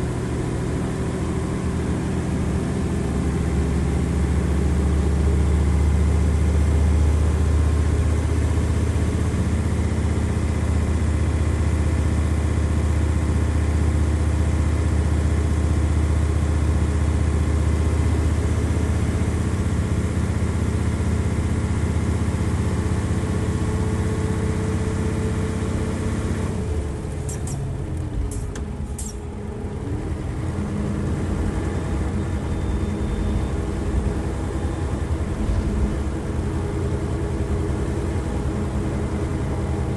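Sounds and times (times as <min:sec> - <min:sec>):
bus diesel engine revving: 0:14.4 - 0:39.9
engine clicks: 0:27.1 - 0:29.3.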